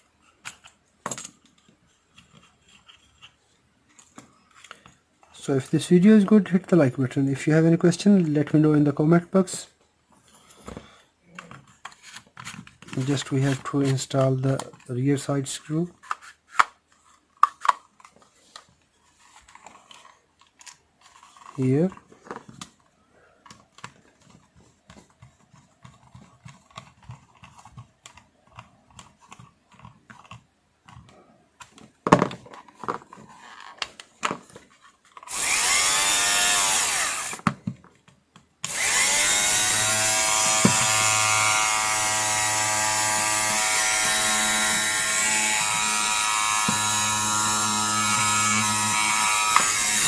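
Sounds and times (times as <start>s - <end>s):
small motor whining: 35.3s - 37.4s, 38.7s - 50.0s
screwdriver clicks: 38.6s - 41.3s, 47.9s - 50.0s.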